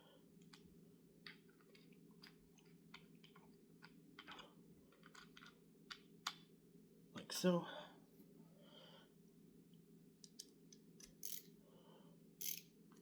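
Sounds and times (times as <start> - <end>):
socket wrench clicking: 10.2 - 11.5, 12.4 - 12.7.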